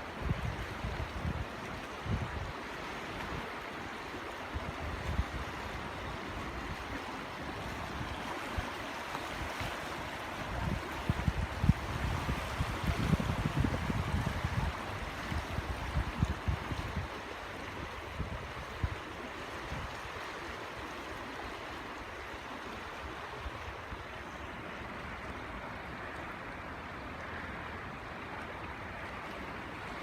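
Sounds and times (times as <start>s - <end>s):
water rushing: 0.0s - 30.0s
wind buffeting microphone: 9.3s - 20.2s.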